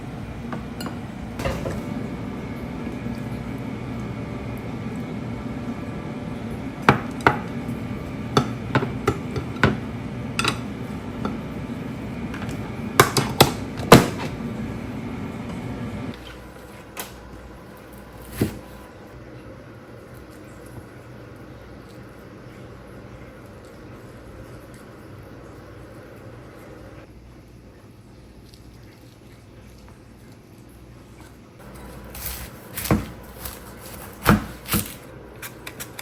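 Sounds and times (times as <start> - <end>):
steady low hum: 0.0 - 16.2
kitchenware knocking and clinking: 0.5 - 2.1, 6.8 - 7.7, 8.3 - 11.5, 12.3 - 14.4.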